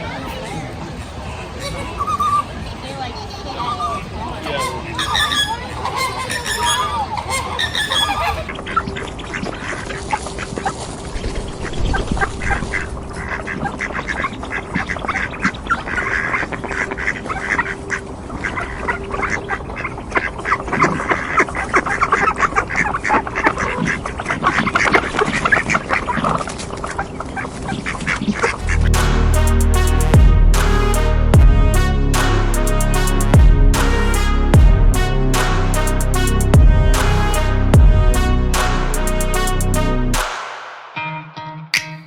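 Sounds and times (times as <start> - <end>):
flamingos honking and chattering: 0.0 - 40.2
music with a beat: 28.6 - 42.0.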